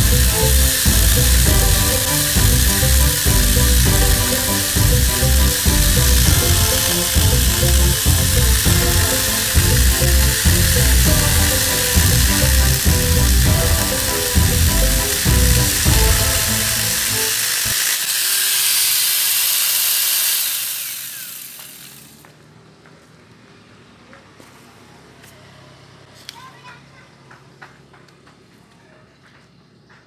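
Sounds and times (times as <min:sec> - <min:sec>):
background music with a beat: 0:00.0 - 0:17.5
angle grinder chainsaw cutting log: 0:00.0 - 0:22.3.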